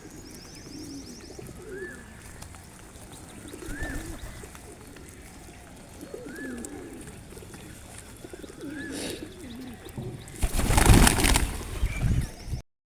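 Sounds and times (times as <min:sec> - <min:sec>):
pigeons cooing: 0:00.0 - 0:12.6
loud rustling: 0:10.4 - 0:11.8.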